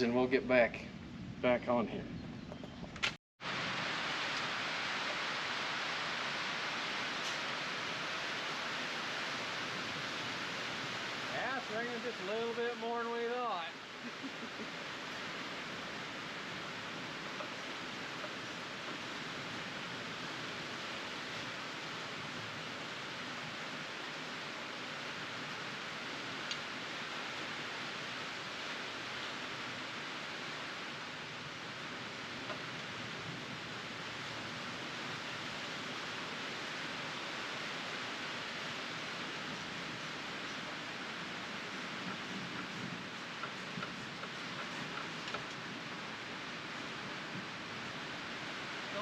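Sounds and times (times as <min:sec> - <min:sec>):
steady rain hiss: 0:00.0 - 0:02.0, 0:03.4 - 0:49.0
faint ticks: 0:26.4 - 0:26.7, 0:42.0 - 0:45.6.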